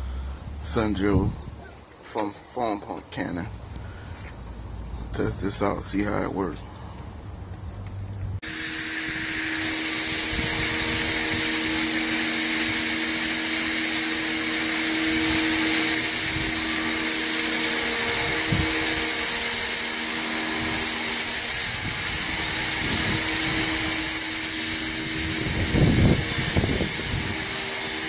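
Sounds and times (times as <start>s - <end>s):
pressure washer motor humming: 8.4s - 28.0s
water spraying hiss: 8.4s - 28.0s.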